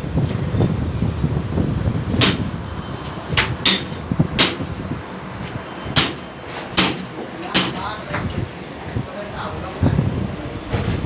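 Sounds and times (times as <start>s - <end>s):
hammer striking metal: 2.2s - 2.6s, 3.6s - 4.7s, 5.9s - 7.9s.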